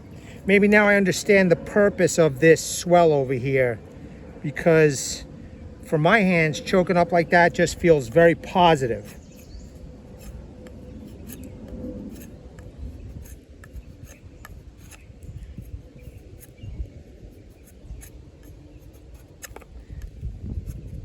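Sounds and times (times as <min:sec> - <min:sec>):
knife scraping wood: 0:07.7 - 0:21.0.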